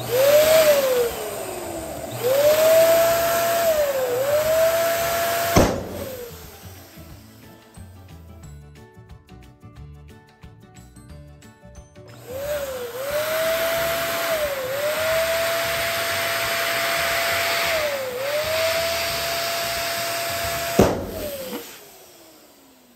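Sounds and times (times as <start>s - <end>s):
electric balloon pump whining: 0.0s - 8.5s, 12.0s - 22.9s
balloon bang: 5.5s - 6.4s, 20.7s - 21.7s.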